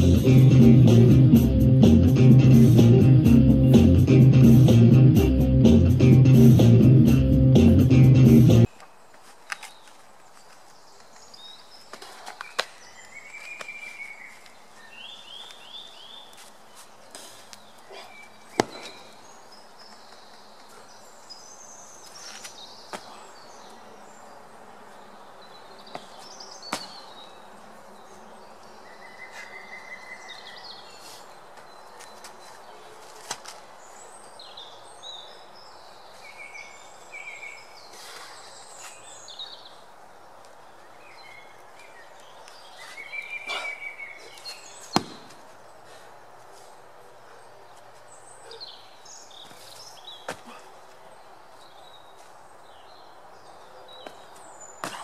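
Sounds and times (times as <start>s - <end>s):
steady background hiss: 8.6s - 55.0s
birds chirping: 33.6s - 55.0s
sharp knocks: 45.0s - 45.3s.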